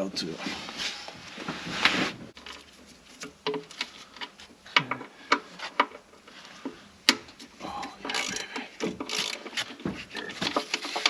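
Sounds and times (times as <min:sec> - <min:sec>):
scraping rustle: 0:00.2 - 0:04.5
hand tools clicking and tapping: 0:03.2 - 0:11.0.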